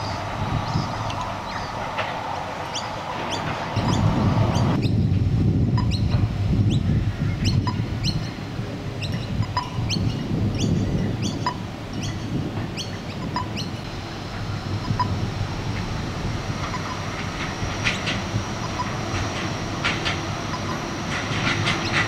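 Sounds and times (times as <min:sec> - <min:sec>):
birds chirping: 0:00.0 - 0:05.1, 0:05.8 - 0:21.0
low rumble: 0:00.0 - 0:08.4, 0:13.4 - 0:22.0.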